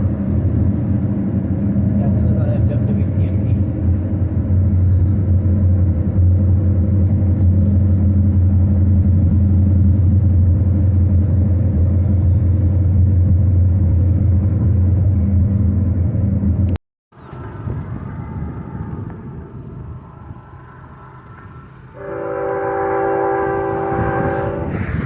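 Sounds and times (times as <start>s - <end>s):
low vehicle rumble: 0.0s - 25.0s.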